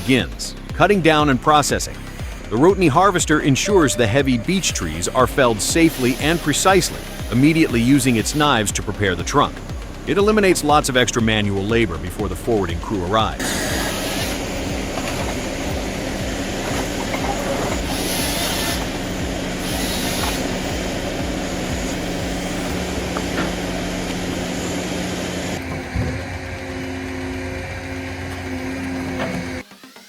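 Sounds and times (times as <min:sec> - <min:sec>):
diesel engine running under load: 0:00.0 - 0:29.6
short hissing bursts: 0:05.8 - 0:08.6, 0:13.4 - 0:24.0.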